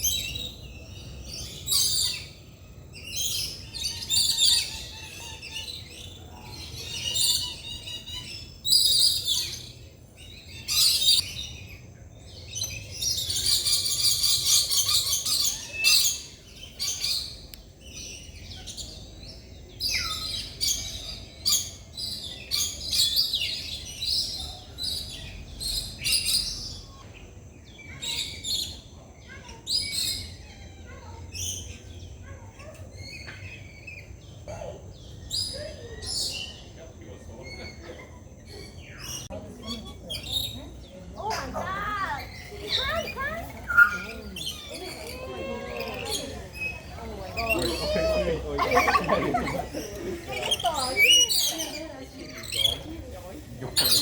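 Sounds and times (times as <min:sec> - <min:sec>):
birds chattering and chirping: 0:00.0 - 0:54.0.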